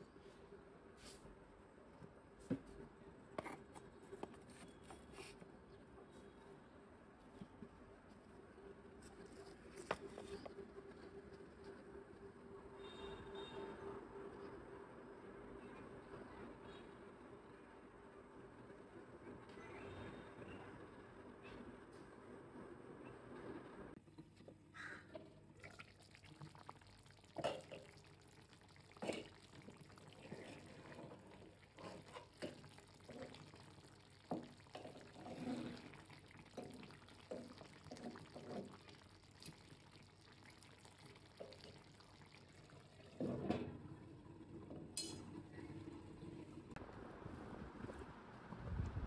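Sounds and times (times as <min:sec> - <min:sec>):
water pouring and splashing: 0:25.5 - 0:46.8.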